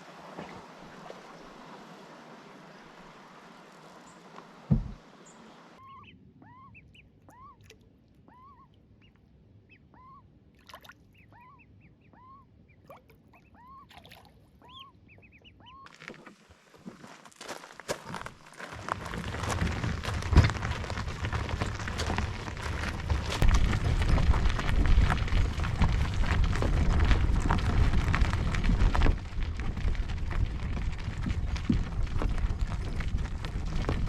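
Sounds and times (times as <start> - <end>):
bird short rising calls: 5.2 - 7.7, 8.3 - 8.8.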